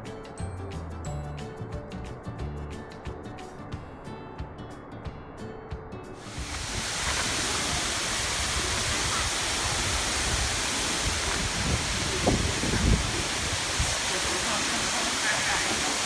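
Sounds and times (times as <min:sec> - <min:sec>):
background music: 0:00.0 - 0:06.6
waterfall rushing: 0:06.2 - 0:16.0.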